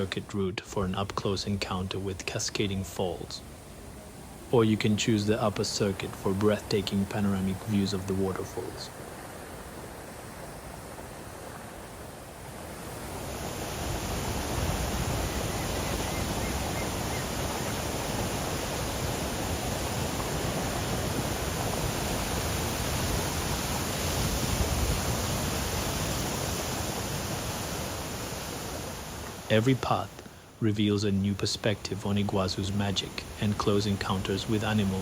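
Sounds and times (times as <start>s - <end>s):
waterfall roar: 12.7s - 30.8s.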